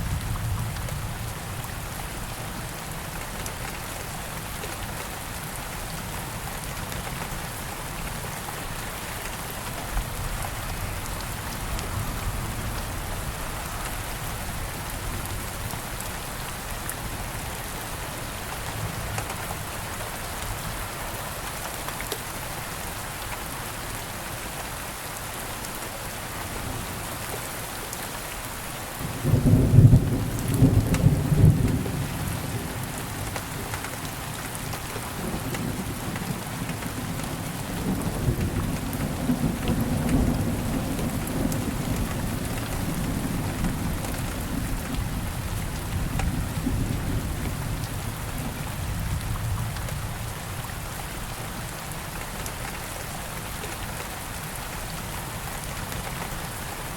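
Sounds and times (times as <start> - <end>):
steady rain falling: 0.0 - 56.9
thunder crack and rumble: 29.1 - 33.3, 34.7 - 50.3.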